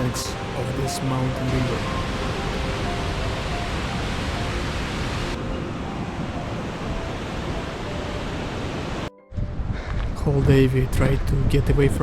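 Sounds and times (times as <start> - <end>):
river rushing: 0.0 - 9.1.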